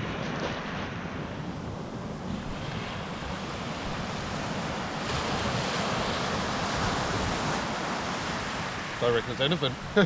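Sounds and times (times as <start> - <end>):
wind rumbling on microphone: 0.0 - 9.0
sea surf washing: 0.0 - 10.0.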